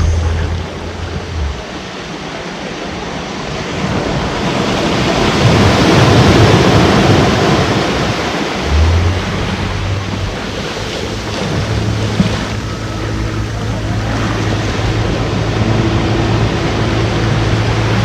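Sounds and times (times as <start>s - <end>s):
low steady hum: 0.0s - 2.1s
ocean waves breaking: 0.0s - 18.0s.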